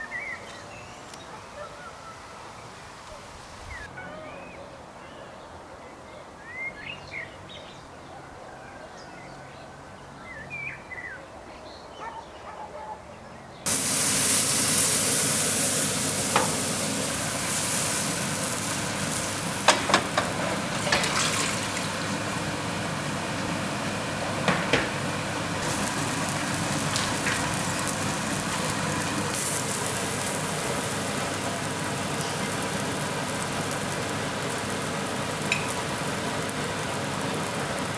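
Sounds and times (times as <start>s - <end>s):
pancake batter sizzling in a pan: 13.7s - 37.9s
small birds chirping: 25.5s - 37.9s
sharp clicks and pops: 26.8s - 37.9s.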